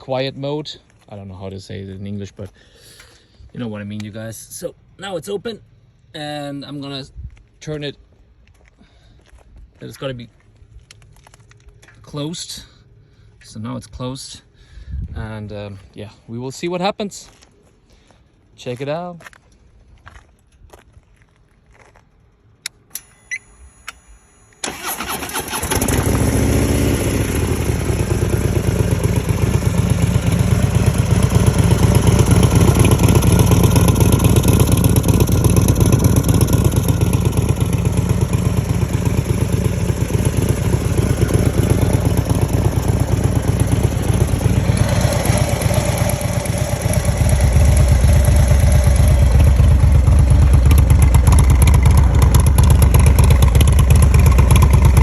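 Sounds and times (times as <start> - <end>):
starter cranking: 24.6 - 26.3
motorcycle engine idling: 24.7 - 55.0.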